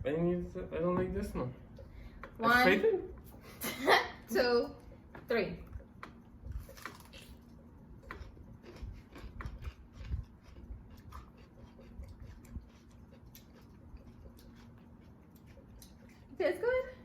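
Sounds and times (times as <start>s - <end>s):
people chewing crunchy food: 5.6s - 16.4s.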